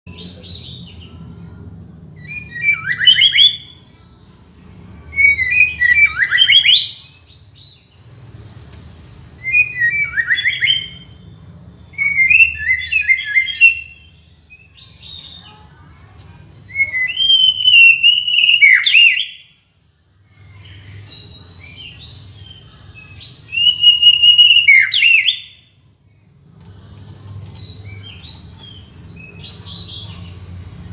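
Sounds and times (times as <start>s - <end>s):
bird singing whistled phrases: 2.2s - 3.8s, 5.1s - 7.8s, 9.4s - 11.2s, 11.9s - 15.4s, 16.7s - 19.5s, 21.0s - 25.7s.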